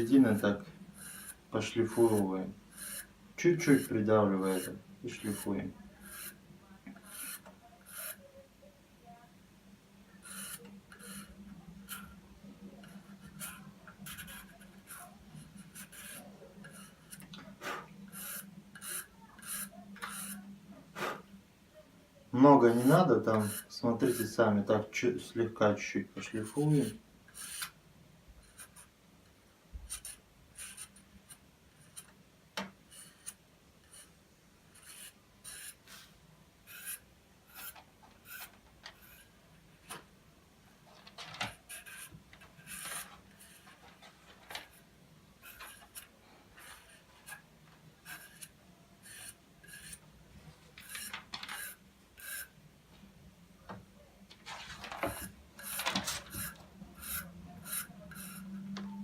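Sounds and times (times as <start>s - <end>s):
knife blade scraping: 17.8s - 20.4s, 36.7s - 39.3s, 55.1s - 58.5s.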